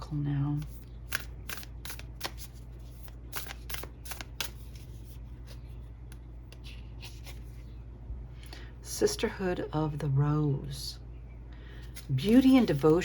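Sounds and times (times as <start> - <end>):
steady low hum: 0.0 - 13.0
cards being shuffled: 0.6 - 7.7, 11.8 - 13.0.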